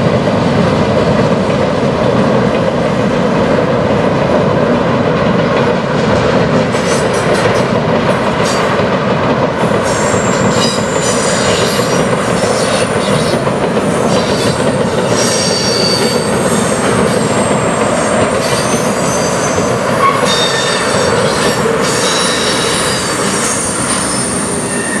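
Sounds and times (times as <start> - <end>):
train wheels clattering on rail: 0.0 - 25.0
wheel flange squeals: 15.2 - 25.0.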